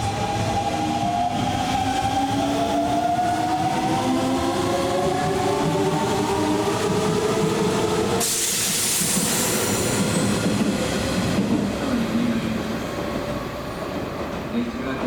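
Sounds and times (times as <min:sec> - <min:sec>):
loud air hiss: 0:08.2 - 0:10.0.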